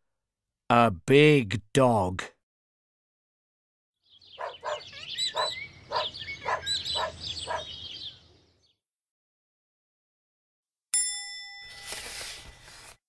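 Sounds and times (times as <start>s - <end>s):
cartoon bird chirping: 4.2s - 8.2s
sharp metallic ding: 11.0s - 11.9s.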